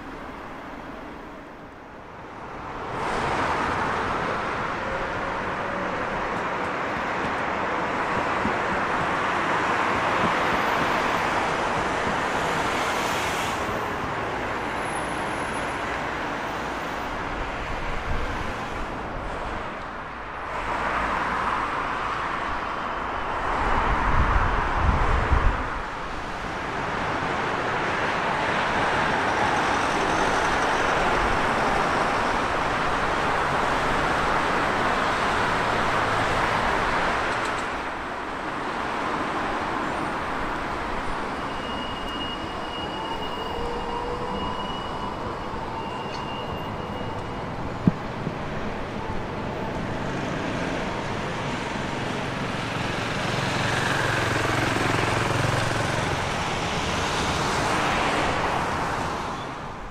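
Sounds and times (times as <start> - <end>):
thin high squeal: 41.3 - 47.5.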